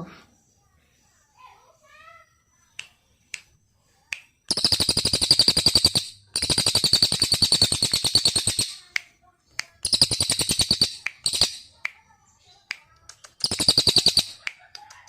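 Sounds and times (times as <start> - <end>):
bird clicks: 4.1 - 12.0, 12.7 - 15.0
songbird trilling: 4.5 - 9.0, 9.8 - 12.5, 13.2 - 14.6.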